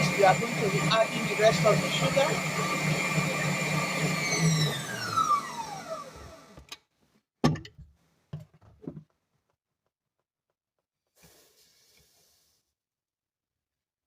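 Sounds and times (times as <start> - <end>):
electric mixer spinning down: 0.0 - 6.6.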